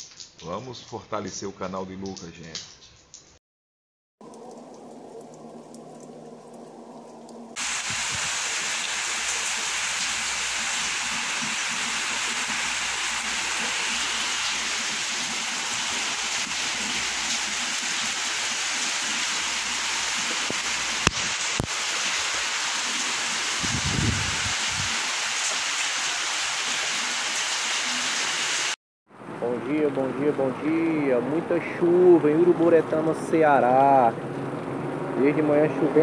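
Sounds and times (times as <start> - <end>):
rain on a wet street: 4.2 - 28.8.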